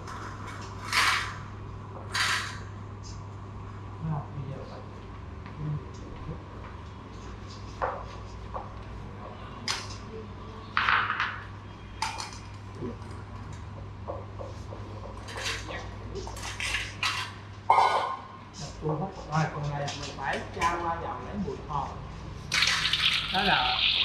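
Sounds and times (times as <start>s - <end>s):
utensils and dishes clattering: 0.0s - 1.5s, 2.1s - 2.8s, 10.8s - 13.2s, 15.0s - 18.0s, 22.5s - 24.0s.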